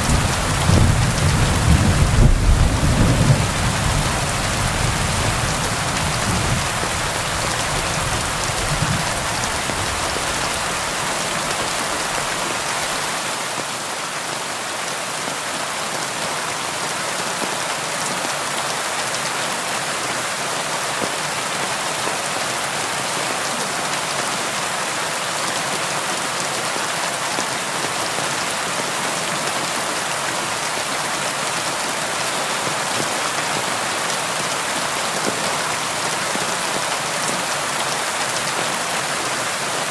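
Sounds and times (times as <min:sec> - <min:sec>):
low rumble of thunder: 0:00.0 - 0:09.9.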